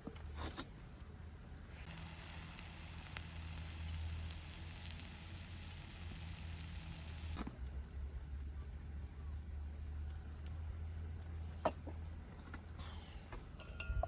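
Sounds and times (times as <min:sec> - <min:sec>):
food sizzling: 0:01.8 - 0:07.4.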